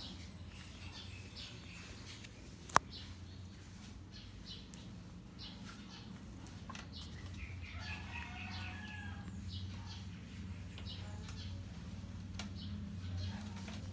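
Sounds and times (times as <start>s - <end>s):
birds chirping: 0.0s - 13.9s
faint low hum: 0.0s - 13.9s.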